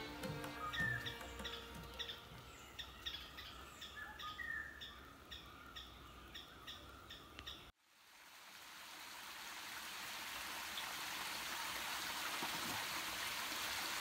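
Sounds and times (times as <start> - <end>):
bird chirping: 0.0 - 7.7.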